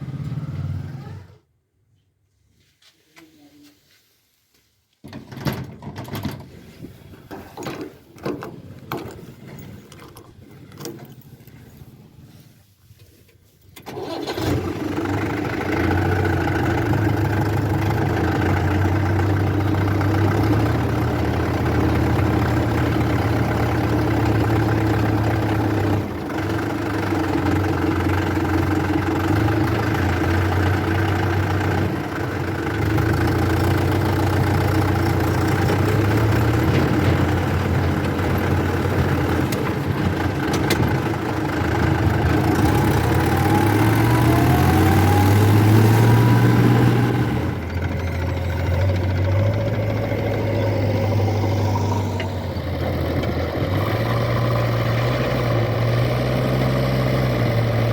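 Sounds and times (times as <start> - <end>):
diesel engine running: 13.9 - 57.9
scattered knocks and clicks: 35.5 - 41.2.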